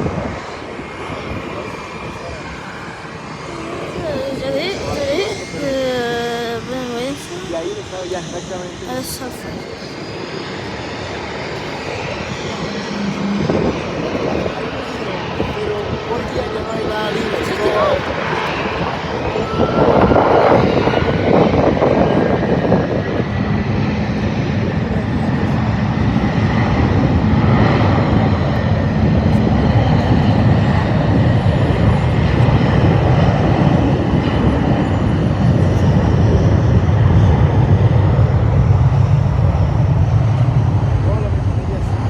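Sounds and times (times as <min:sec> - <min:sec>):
faint engine whine: 0:00.0 - 0:42.0
jet engines rumbling: 0:00.0 - 0:42.0.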